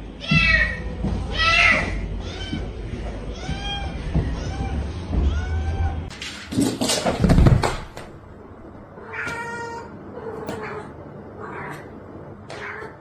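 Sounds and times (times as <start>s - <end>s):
cat meowing: 9.0s - 11.9s.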